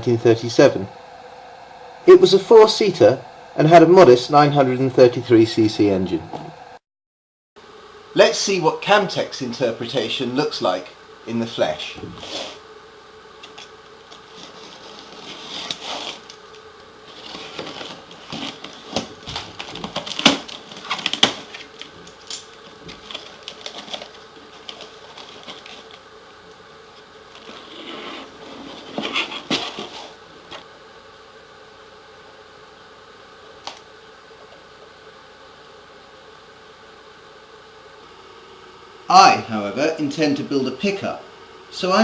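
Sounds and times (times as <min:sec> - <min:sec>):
faint hum: 0:00.0 - 0:06.8, 0:07.6 - 0:42.0
plastic and packaging rustling: 0:13.4 - 0:26.0, 0:27.3 - 0:30.7.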